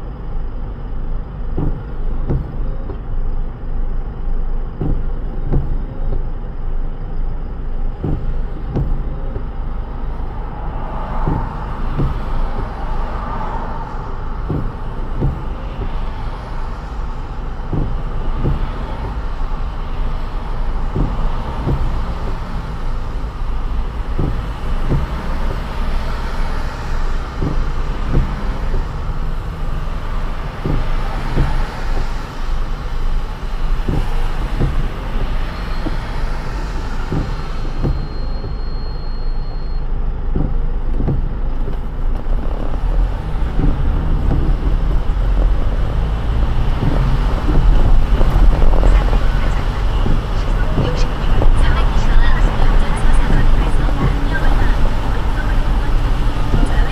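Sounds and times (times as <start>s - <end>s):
road rumble: 0.0s - 56.9s
short knocks: 8.0s - 9.6s
tyres hissing on wet road: 10.1s - 38.6s, 40.4s - 56.9s.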